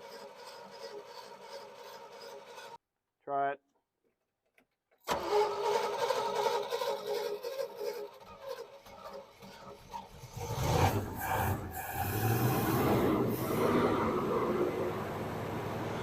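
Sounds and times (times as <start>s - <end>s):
truck engine cranking and starting: 0.0s - 2.8s, 5.0s - 16.0s.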